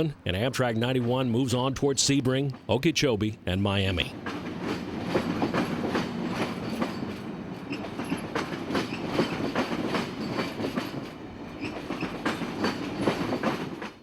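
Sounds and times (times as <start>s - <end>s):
train rumble: 0.0s - 14.0s
train wheels clacking over rail joints: 4.2s - 14.0s.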